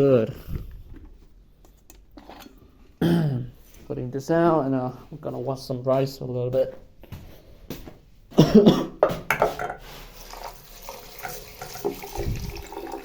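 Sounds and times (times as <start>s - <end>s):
person coughing: 3.0s - 3.5s, 8.3s - 9.2s
tap running into sink: 11.2s - 13.0s.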